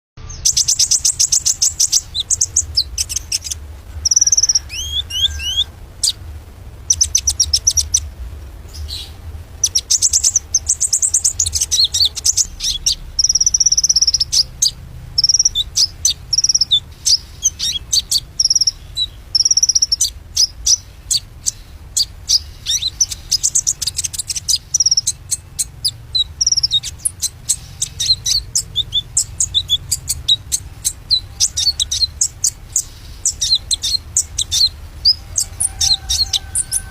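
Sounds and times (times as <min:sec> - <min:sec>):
shama bird singing: 0:00.2 - 0:36.9.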